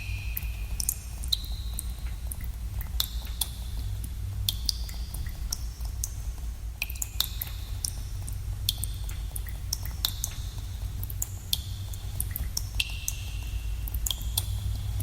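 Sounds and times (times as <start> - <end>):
steady low rumble: 0.0 - 15.0
faint ticks: 0.3 - 14.9
water drops plinking into pool: 6.8 - 8.0, 8.6 - 14.5.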